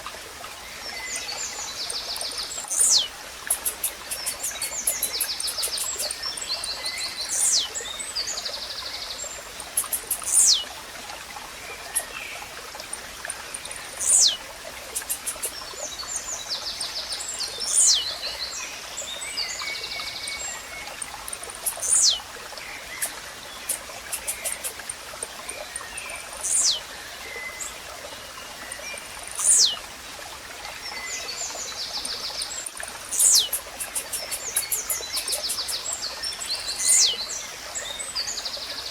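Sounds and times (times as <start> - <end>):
water trickling: 0.0 - 38.9
small birds chirping: 1.0 - 10.8, 11.7 - 27.8, 28.5 - 29.9, 30.9 - 38.4.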